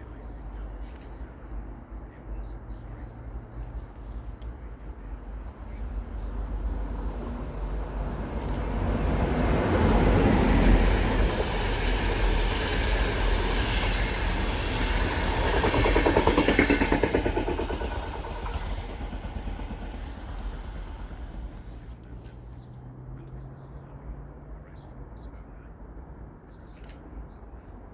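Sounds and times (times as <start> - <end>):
passenger train passing: 0.2 - 23.0
wheels clattering over rails: 7.2 - 21.9
high wheel squeal: 10.5 - 15.9.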